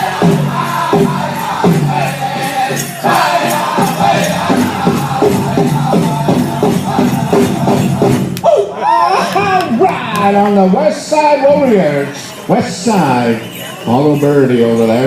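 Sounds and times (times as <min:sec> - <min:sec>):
group singing together: 0:00.0 - 0:08.4
steady beat on a big drum: 0:00.0 - 0:08.4.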